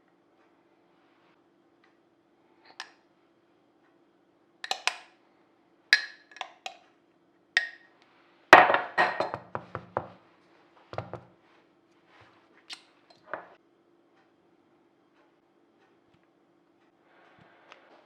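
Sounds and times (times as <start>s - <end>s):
household objects knocking and clinking: 8.6s - 10.2s, 11.0s - 11.3s, 13.2s - 13.6s.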